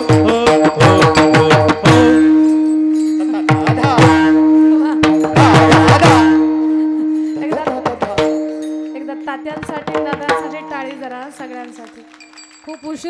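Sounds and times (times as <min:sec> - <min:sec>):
held instrumental drone note: 0:00.0 - 0:11.0
tabla strokes: 0:00.0 - 0:12.6.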